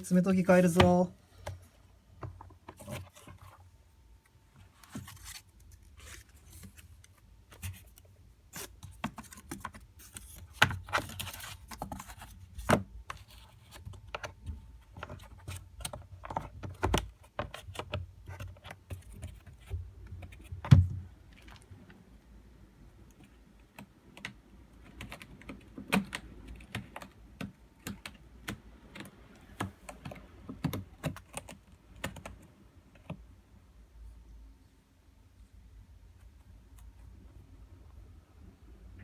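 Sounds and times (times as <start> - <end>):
cardboard scratcher scraping and rustling: 4.6 - 8.0.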